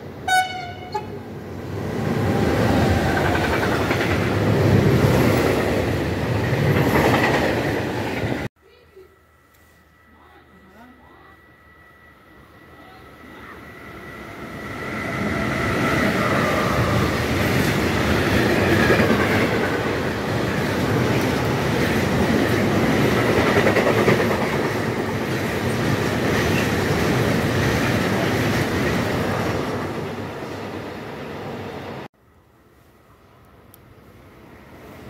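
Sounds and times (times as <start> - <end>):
train wheels rumbling on rails: 0.5 - 8.5, 14.0 - 31.0.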